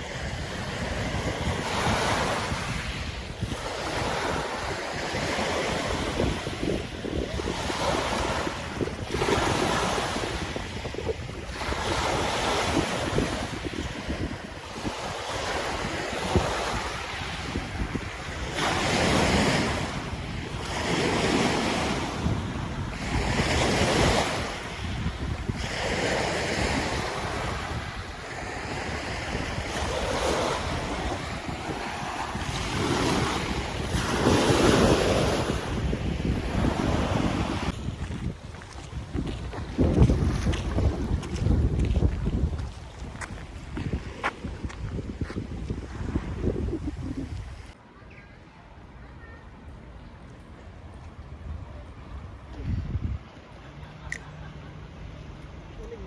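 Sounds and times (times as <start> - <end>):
waves washing in: 0.0 - 47.8
wind rumbling on microphone: 0.0 - 47.8, 50.6 - 54.5.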